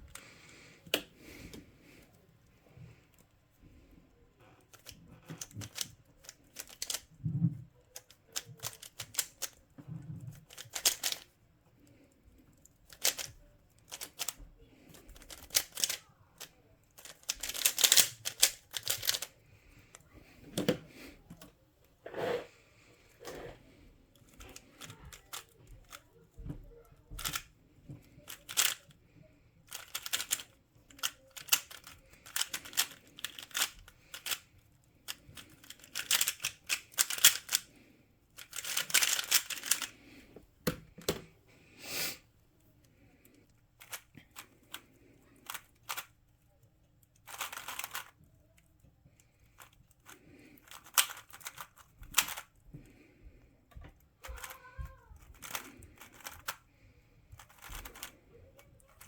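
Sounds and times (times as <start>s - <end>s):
puzzle cube clicking turns: 4.6s - 7.2s, 7.8s - 9.6s, 10.2s - 20.8s, 24.2s - 26.0s, 27.1s - 29.0s, 29.6s - 37.8s, 38.4s - 41.3s, 43.2s - 46.2s, 47.1s - 48.6s, 49.2s - 53.0s, 54.2s - 54.6s, 55.2s - 56.7s, 57.3s - 59.0s.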